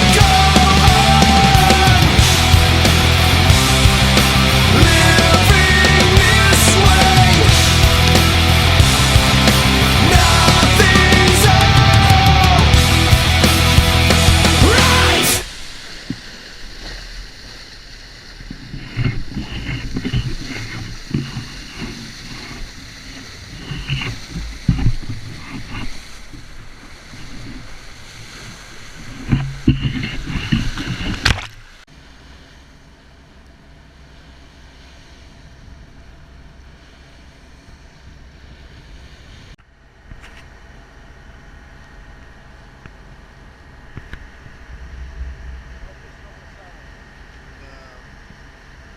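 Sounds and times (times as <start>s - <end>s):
steady rush of noise: 0.0s - 48.9s
water sloshing against hull: 15.5s - 39.6s.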